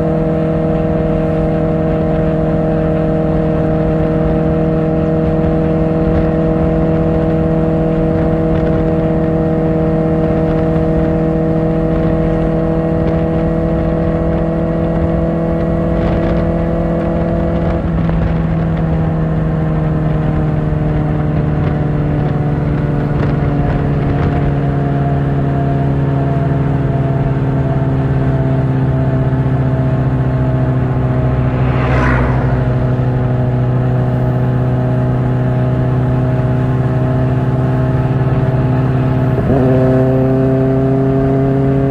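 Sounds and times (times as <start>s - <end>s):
motorcycle engine cruising: 0.0s - 41.9s
brief whoosh: 30.5s - 34.7s.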